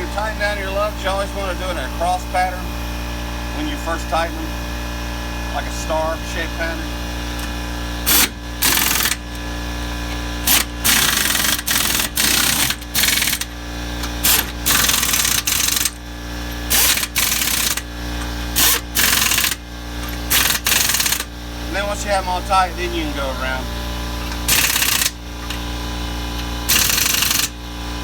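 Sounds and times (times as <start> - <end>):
impact wrench hammering: 7.4 - 21.3, 24.2 - 25.6, 26.3 - 27.6.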